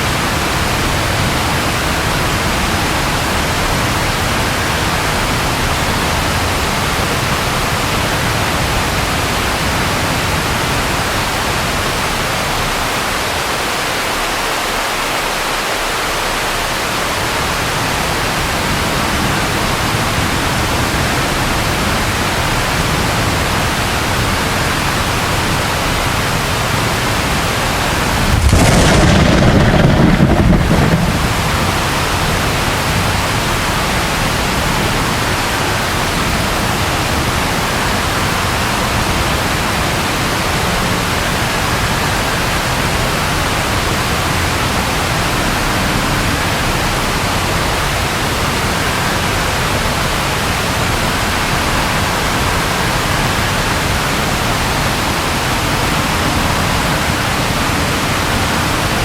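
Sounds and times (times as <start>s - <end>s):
rain hiss: 0.0s - 59.0s
thunder rumble: 27.1s - 34.7s.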